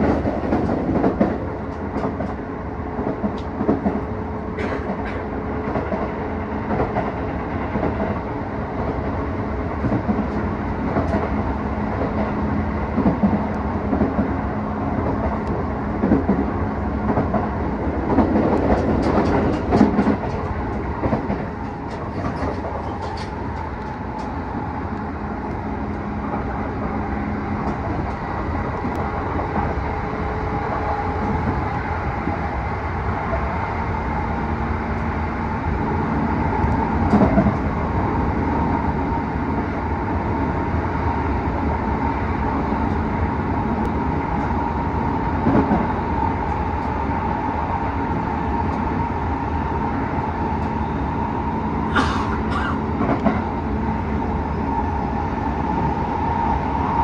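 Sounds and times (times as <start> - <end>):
train running noise with whine: 0.0 - 57.0.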